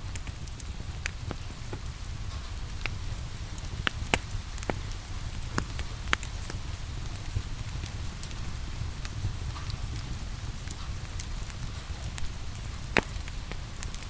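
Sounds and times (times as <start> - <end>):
rain hissing: 0.0 - 14.0
wood fire crackling and popping: 0.0 - 14.0.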